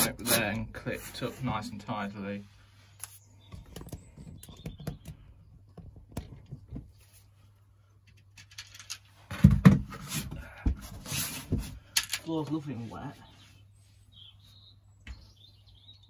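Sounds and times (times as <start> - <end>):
thumps and rustling: 3.5 - 7.2, 8.6 - 12.2.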